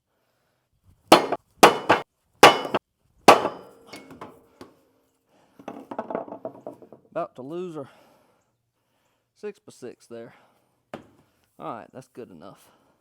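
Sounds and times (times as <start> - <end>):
hammer blows on wooden block: 1.1 - 4.1.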